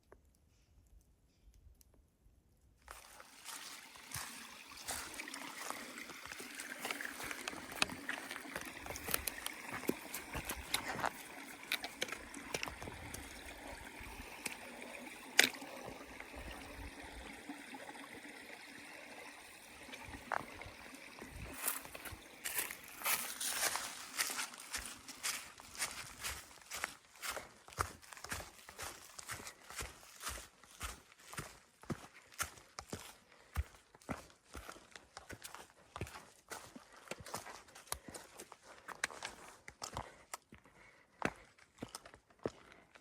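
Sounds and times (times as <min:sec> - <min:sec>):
little splashes: 0:02.9 - 0:31.4
stream trickling over rocks: 0:02.9 - 0:40.4.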